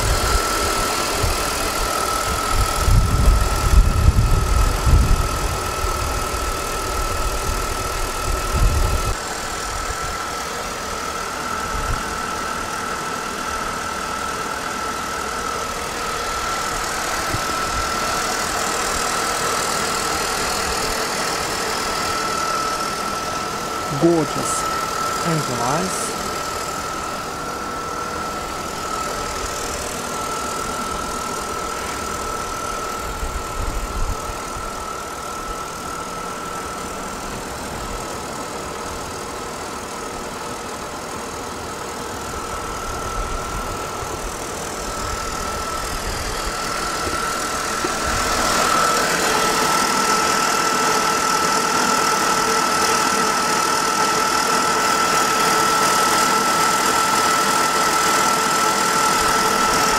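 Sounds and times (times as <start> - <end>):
thin high whine: 0.0 - 37.3.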